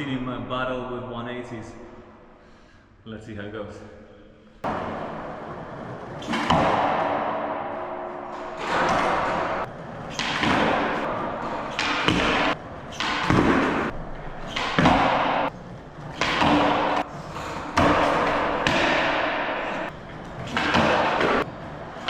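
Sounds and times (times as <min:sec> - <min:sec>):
skateboard wheels rolling on pavement: 0:04.6 - 0:18.8
skateboard landing thuds: 0:04.6 - 0:22.0.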